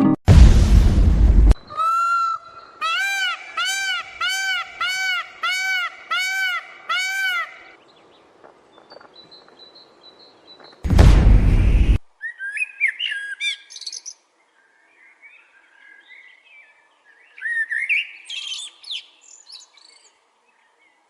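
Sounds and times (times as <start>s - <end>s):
burst of rushing noise: 0.3s - 1.6s, 10.9s - 12.0s
peafowl honking calls: 1.6s - 7.8s.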